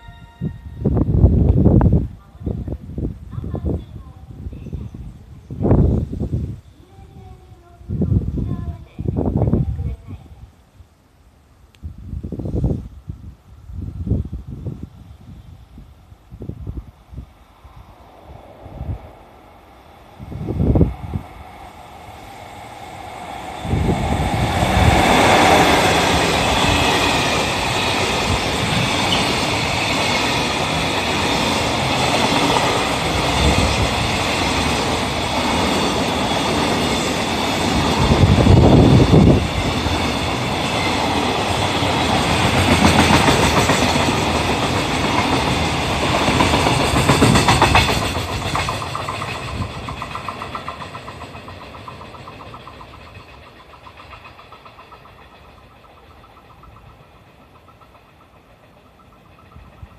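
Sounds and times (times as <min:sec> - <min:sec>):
locomotive rumble: 0:16.4 - 0:59.9
wagon wheels clickety-clack: 0:46.2 - 0:59.9.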